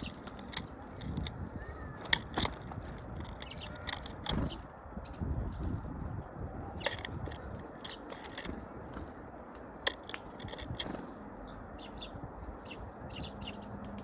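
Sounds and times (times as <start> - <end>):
birds pecking at feed: 0.0 - 5.9, 6.7 - 14.0.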